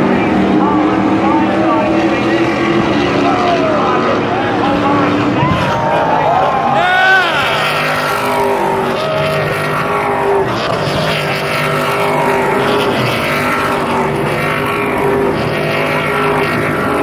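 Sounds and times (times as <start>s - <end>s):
truck engines revving: 0.0s - 17.0s.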